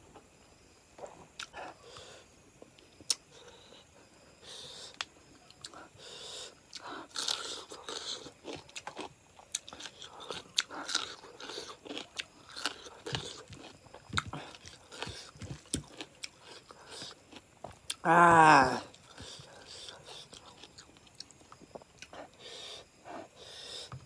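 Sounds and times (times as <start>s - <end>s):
chewing mouth noises: 6.7s - 18.0s.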